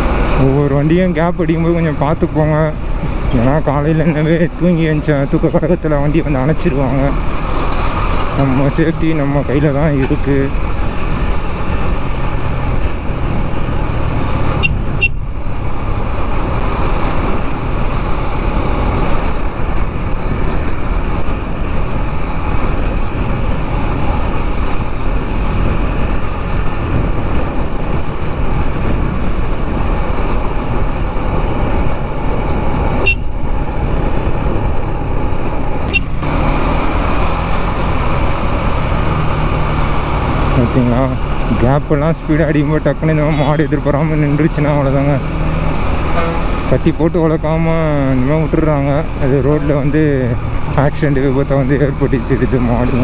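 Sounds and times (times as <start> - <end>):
motorcycle engine running: 0.0 - 53.0
road noise: 0.0 - 53.0.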